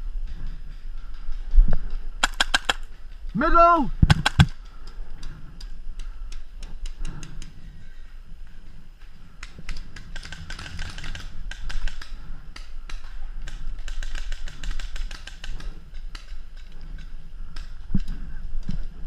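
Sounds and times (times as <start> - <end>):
paintball markers firing: 2.2 - 3.0, 4.0 - 4.7, 9.4 - 16.4.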